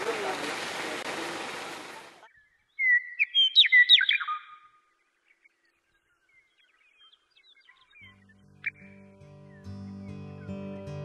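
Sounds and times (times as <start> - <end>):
faint bird chirps: 2.2 - 9.0
bird whistling song: 2.3 - 4.8, 5.4 - 9.8.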